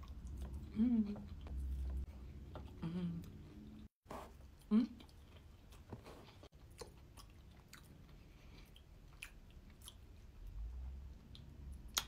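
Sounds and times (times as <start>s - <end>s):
faint wet chewing clicks: 6.7s - 12.0s.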